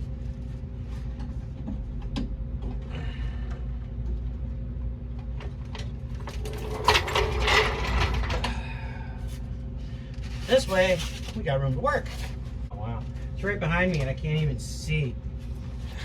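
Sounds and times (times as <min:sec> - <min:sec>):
floor jack clicks and clanks: 0:06.2 - 0:08.5
metal jack dragged rattling: 0:06.3 - 0:08.5.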